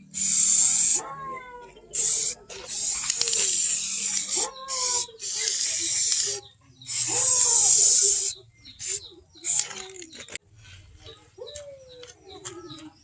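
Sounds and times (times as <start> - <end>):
loud hissing bursts: 0.0 - 1.0, 2.0 - 9.7.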